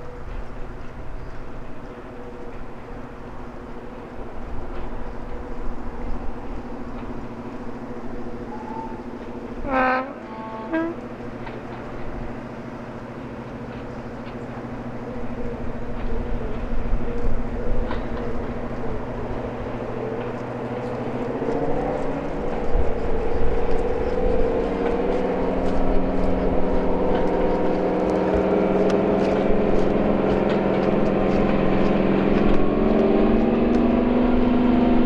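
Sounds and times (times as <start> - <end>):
diesel locomotive engine droning: 0.0 - 35.0
two-tone train horn: 8.2 - 12.6, 23.3 - 35.0.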